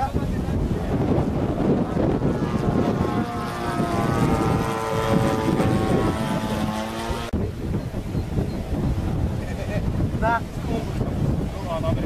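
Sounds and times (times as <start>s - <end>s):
wind buffeting microphone: 0.0s - 12.0s
model airplane motor whining: 1.3s - 7.4s.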